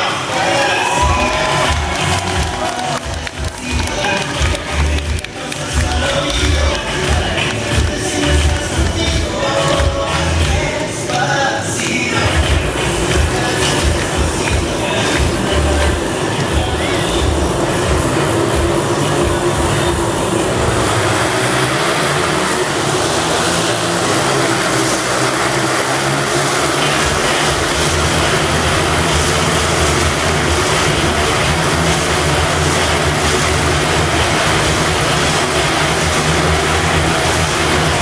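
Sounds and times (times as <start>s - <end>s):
motorcycle engines running hard: 12.2s - 38.0s.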